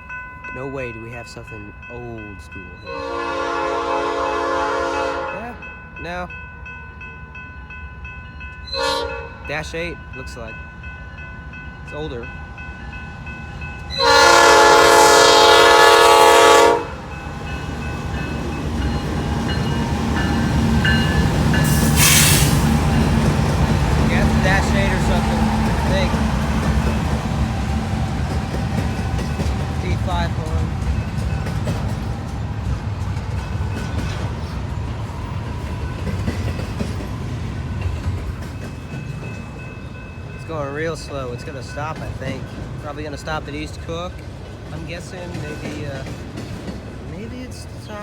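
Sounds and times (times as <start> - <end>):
train running rumble: 0.0 - 48.0
locomotive air horn blast: 2.9 - 5.5, 8.7 - 9.4, 13.9 - 17.0, 21.6 - 22.8.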